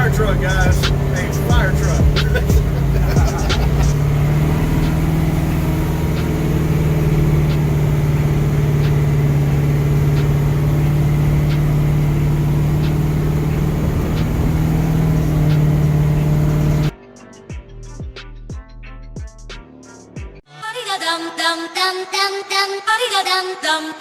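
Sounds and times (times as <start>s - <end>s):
truck engine idling: 0.0s - 16.9s.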